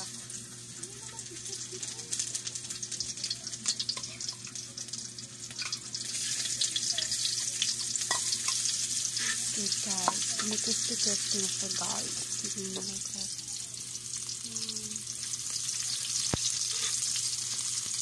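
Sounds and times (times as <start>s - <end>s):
food sizzling in a wok: 0.0s - 18.0s
metal spatula tapping a pan: 10.0s - 10.6s.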